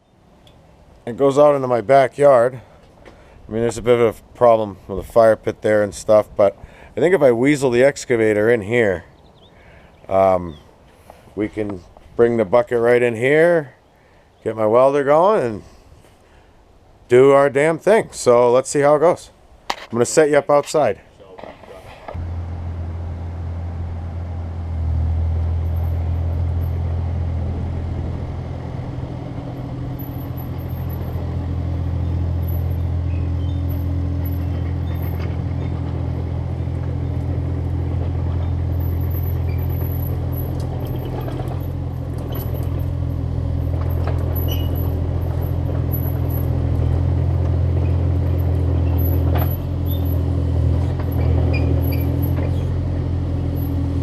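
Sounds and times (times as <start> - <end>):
excavator engine droning: 21.4 - 54.0.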